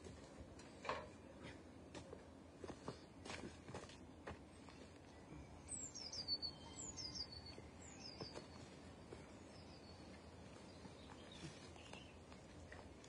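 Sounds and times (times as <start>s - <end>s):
faint background noise: 0.0s - 13.0s
small bird singing: 4.6s - 12.6s.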